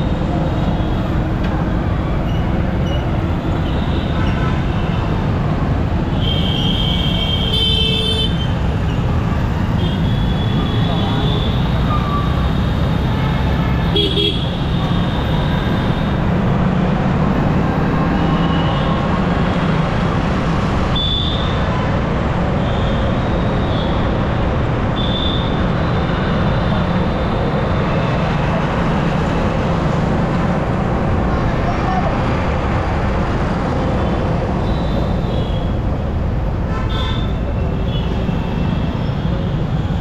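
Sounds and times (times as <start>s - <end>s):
wind and road noise: 0.0s - 40.0s
car horn beeps: 13.9s - 16.2s.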